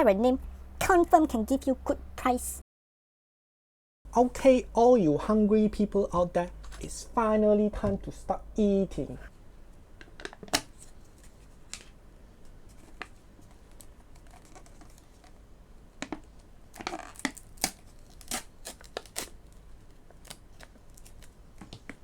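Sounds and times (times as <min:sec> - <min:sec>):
packaging tearing and rustling: 0:12.7 - 0:15.4, 0:16.7 - 0:22.0
snack packaging crinkling: 0:16.7 - 0:21.8.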